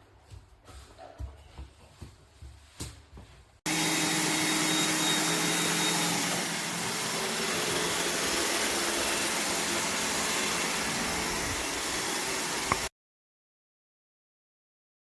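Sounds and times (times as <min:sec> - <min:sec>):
robot vacuum motor whirring: 0:03.7 - 0:12.9.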